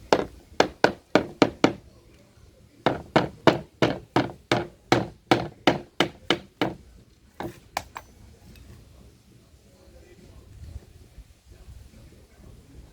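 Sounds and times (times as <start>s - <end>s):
hammer striking wood: 0.0s - 1.8s, 2.9s - 6.8s, 7.4s - 7.6s.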